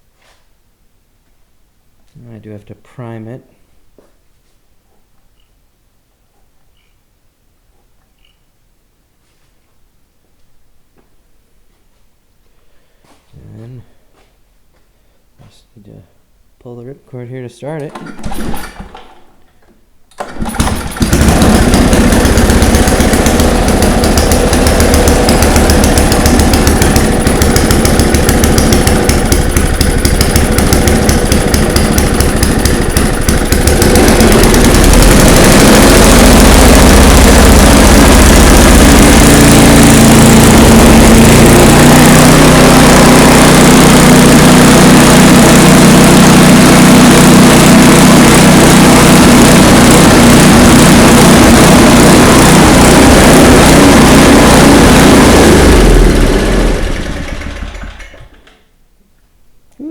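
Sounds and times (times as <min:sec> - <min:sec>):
snowblower engine running: 0:17.9 - 0:19.1, 0:20.2 - 0:58.5.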